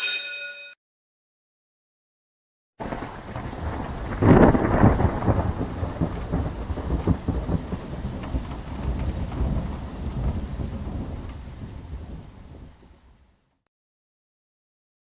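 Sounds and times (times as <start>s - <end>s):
loud thunder crack: 2.8s - 12.9s
steady rain hiss: 2.8s - 13.4s.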